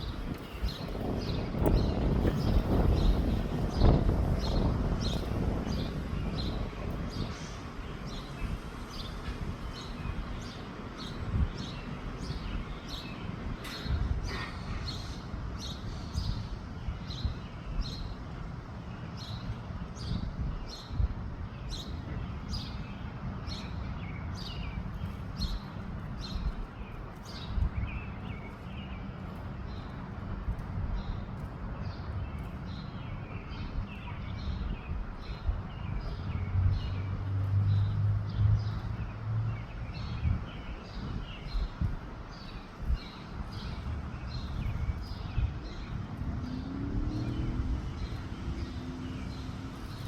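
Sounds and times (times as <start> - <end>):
small birds chirping: 0.0 - 50.0
wind on microphone: 0.0 - 50.0.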